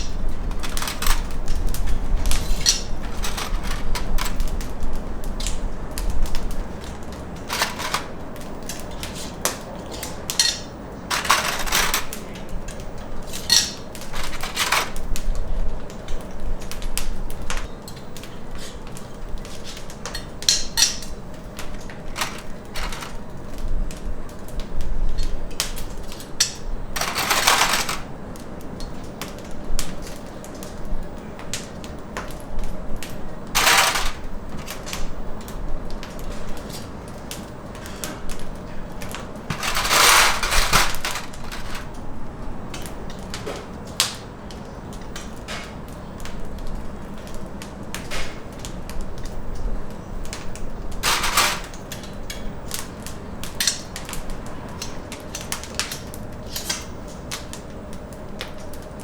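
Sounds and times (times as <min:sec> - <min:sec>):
clicks and knocks of hard objects: 0:00.0 - 0:24.0, 0:24.6 - 0:28.2, 0:31.5 - 0:42.1, 0:50.3 - 0:54.1.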